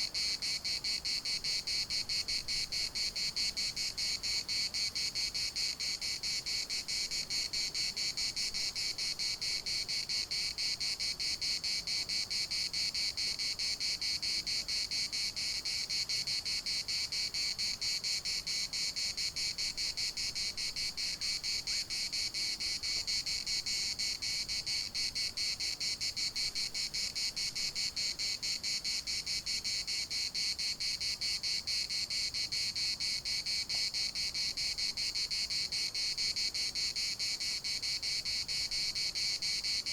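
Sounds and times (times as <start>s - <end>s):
cicada chorus buzzing: 0.0s - 39.9s.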